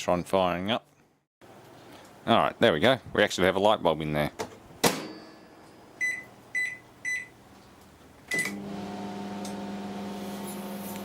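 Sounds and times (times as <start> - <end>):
microwave keypad beeping: 6.0 - 7.4
microwave oven humming: 8.3 - 11.0.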